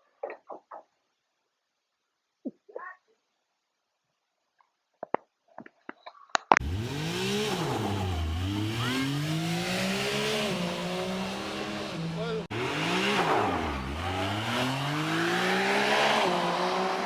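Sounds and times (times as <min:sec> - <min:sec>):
engine starting and revving: 0:06.6 - 0:17.0.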